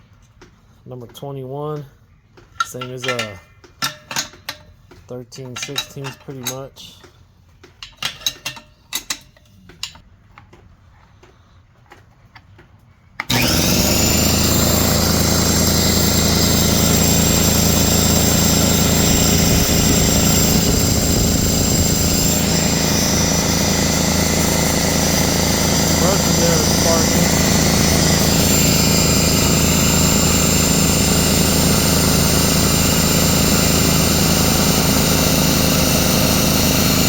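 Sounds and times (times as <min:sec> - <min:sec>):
metal tools clinking: 0:02.5 - 0:10.0
air compressor running with whine: 0:13.2 - 0:37.0.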